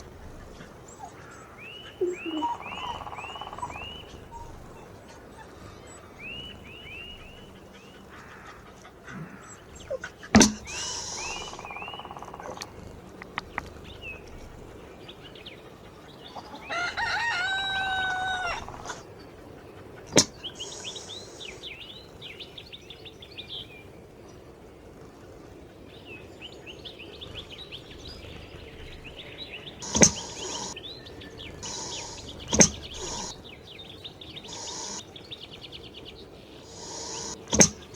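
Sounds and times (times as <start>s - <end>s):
small birds chirping: 0.0s - 37.9s
rooster crowing: 16.5s - 19.0s
sharp clicks: 29.8s - 30.8s, 31.6s - 33.4s, 34.4s - 35.0s, 36.7s - 37.9s.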